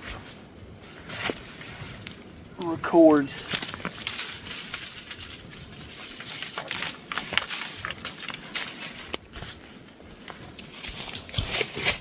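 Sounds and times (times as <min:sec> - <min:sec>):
dry leaves rustling and crackling: 0:00.0 - 0:12.0
twigs snapping: 0:01.2 - 0:09.4.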